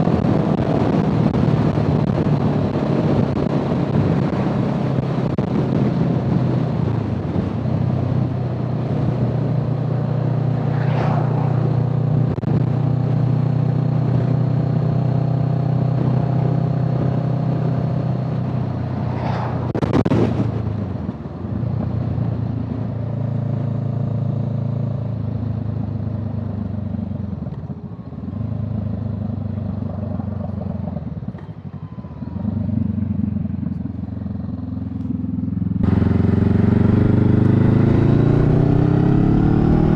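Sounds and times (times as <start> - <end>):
brief rushing sound: 10.2 - 12.7, 18.8 - 20.6
vehicle engine running: 26.8 - 39.9.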